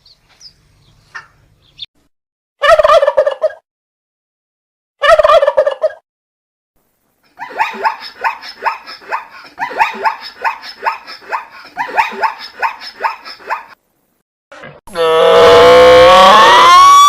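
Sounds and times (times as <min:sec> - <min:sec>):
turkey gobbling: 0:02.6 - 0:03.6, 0:05.0 - 0:06.0
turkey yelping calls: 0:02.6 - 0:03.6, 0:05.0 - 0:06.0.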